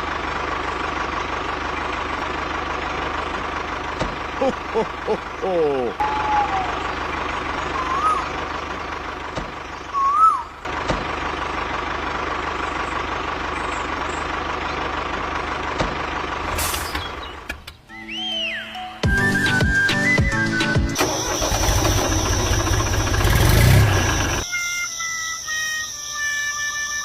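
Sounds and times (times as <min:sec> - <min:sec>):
small motor whining: 0:21.1 - 0:27.0.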